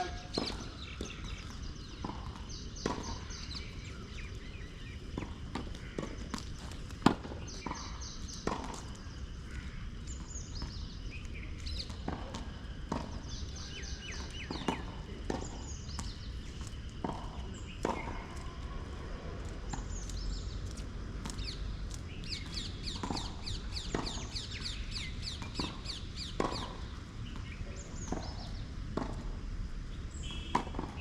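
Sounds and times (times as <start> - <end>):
birds chirping: 0.0 - 12.2, 12.9 - 29.1, 30.0 - 31.0
tennis balls struck and bouncing: 0.0 - 29.5, 30.2 - 31.0.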